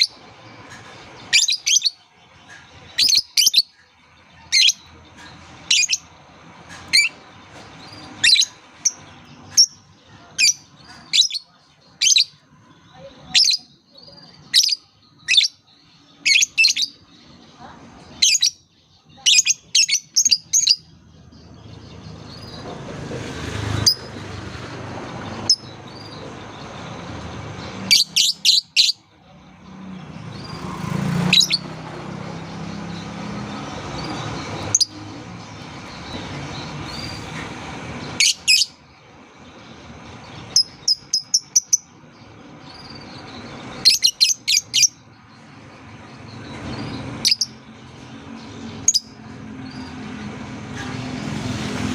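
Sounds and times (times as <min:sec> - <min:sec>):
bird chirping: 0:00.0 - 0:51.9.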